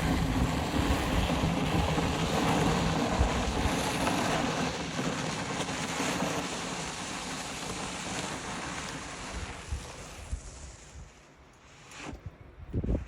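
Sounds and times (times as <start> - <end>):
snow pusher scraping snow: 0.0 - 13.0.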